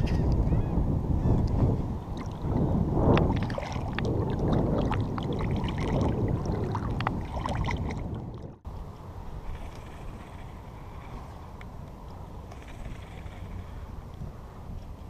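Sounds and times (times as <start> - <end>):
water sloshing around legs: 3.2 - 8.6.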